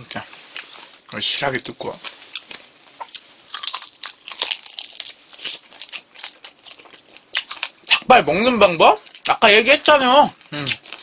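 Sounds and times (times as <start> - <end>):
crunching and chewing mouth sounds: 0.0 - 1.2, 2.0 - 8.1, 9.0 - 9.4, 10.3 - 11.0.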